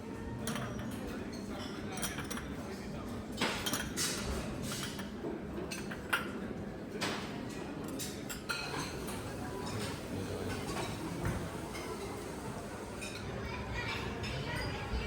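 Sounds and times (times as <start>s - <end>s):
dishes and cutlery clinking: 0.4s - 15.0s
murmur of voices: 6.4s - 15.0s.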